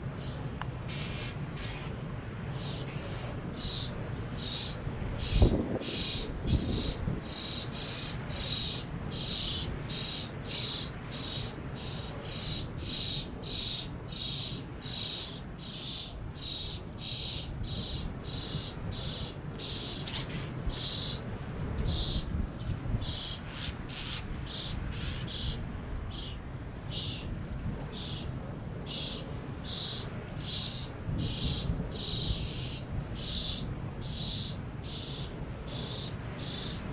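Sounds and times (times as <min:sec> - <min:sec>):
wind rumble on microphone: 0:02.1 - 0:10.4, 0:16.2 - 0:36.9.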